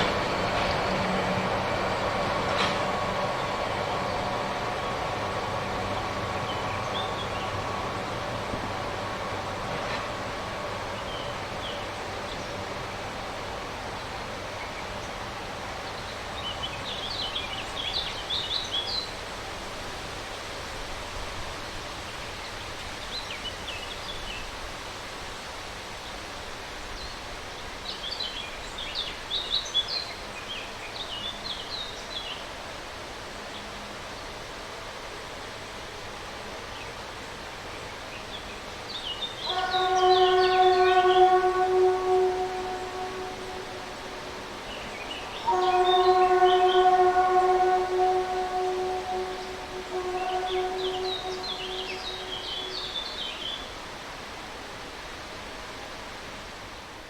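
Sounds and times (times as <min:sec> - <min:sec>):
steady outdoor hiss: 0:00.0 - 0:57.0
locomotive whistle: 0:39.4 - 0:53.5.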